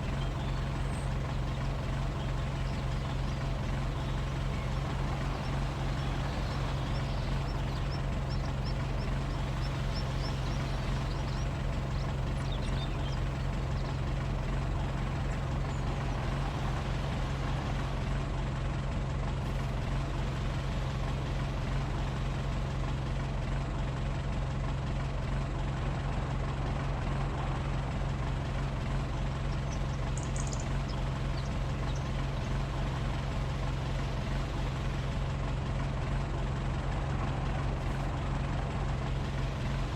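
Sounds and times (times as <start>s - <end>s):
heavy engine droning: 0.0s - 23.2s, 25.8s - 39.9s.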